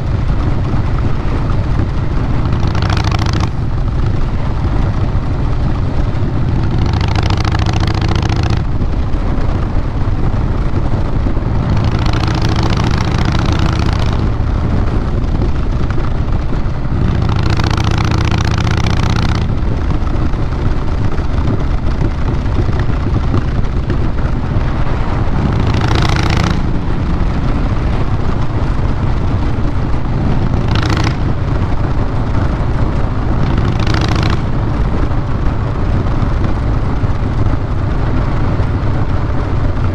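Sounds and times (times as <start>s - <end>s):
motorcycle exhaust rumble: 0.0s - 39.9s.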